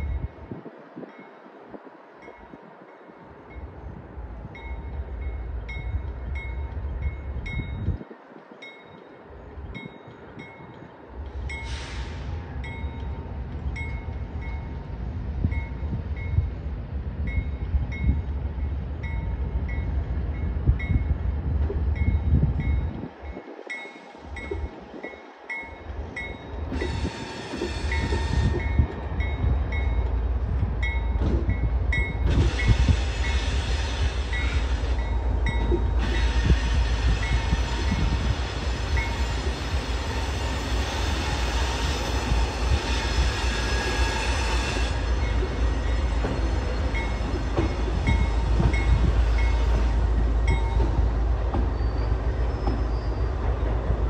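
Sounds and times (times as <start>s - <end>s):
diesel locomotive engines rumbling: 0.0s - 54.0s
railroad crossing bell dinging: 2.2s - 11.8s, 12.6s - 16.6s, 17.2s - 21.2s, 22.0s - 27.0s, 30.8s - 33.4s, 34.3s - 36.6s, 45.1s - 51.1s.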